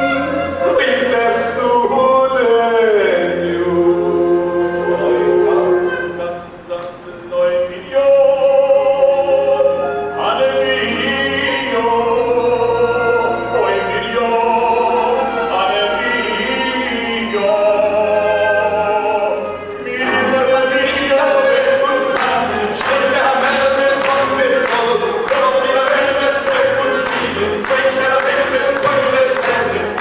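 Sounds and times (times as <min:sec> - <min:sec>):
group of voices singing: 0:10.6 - 0:30.0.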